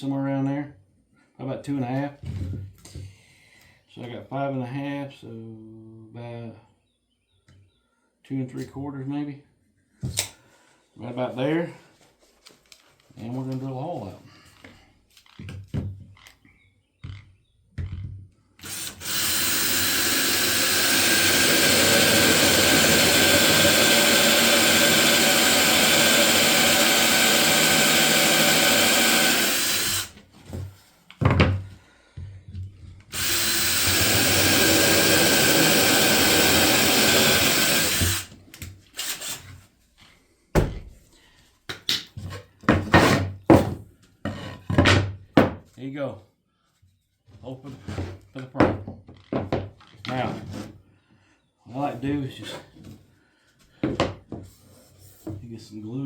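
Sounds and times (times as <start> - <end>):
drill cutting through wood: 18.6 - 30.2, 33.1 - 38.4, 39.0 - 39.5.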